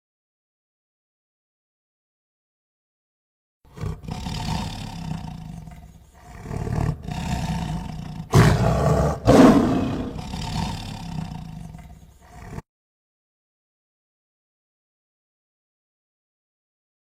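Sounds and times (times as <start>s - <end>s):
large animal throaty calls: 3.7s - 12.6s.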